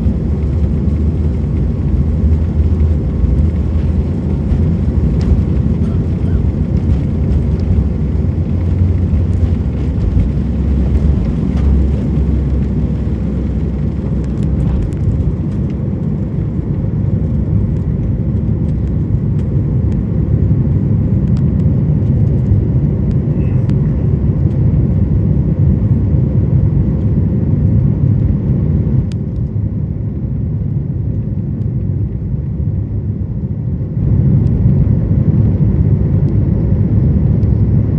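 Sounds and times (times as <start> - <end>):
jet engines roaring: 0.0 - 26.4
deep rumble: 0.0 - 37.9.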